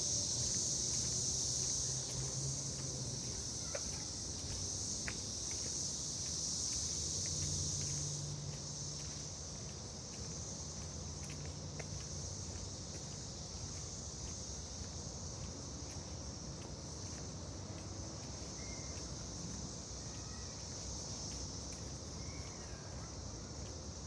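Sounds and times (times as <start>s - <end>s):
footsteps on trail: 0.0s - 23.7s
insect chorus buzzing: 0.0s - 24.0s.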